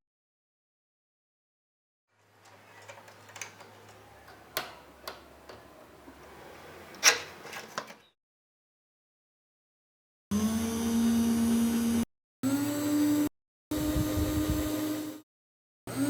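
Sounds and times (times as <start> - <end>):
typewriter parts clicking and knocking: 2.5 - 5.8, 6.9 - 8.0.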